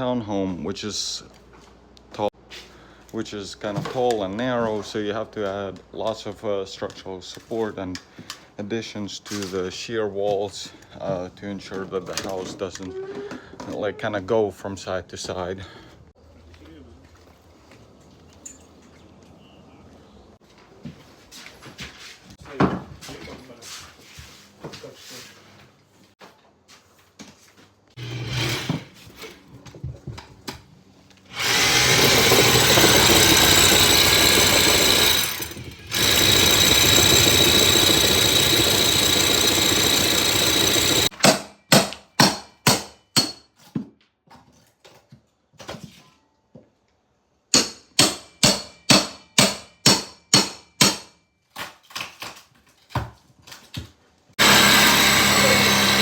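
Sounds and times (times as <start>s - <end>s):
electric drill boring through wood: 28.0s - 29.3s, 31.3s - 41.1s, 54.4s - 56.0s.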